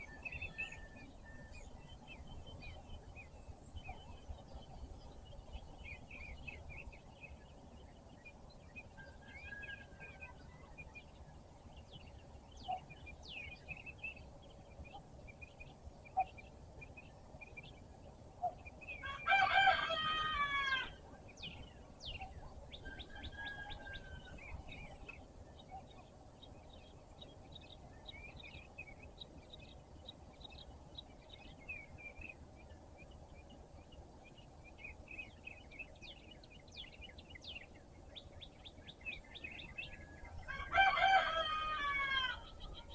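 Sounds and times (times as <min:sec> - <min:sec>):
songbirds chirping: 0:00.0 - 0:42.9
rooster crowing: 0:19.0 - 0:21.0, 0:22.8 - 0:24.6, 0:40.4 - 0:42.7.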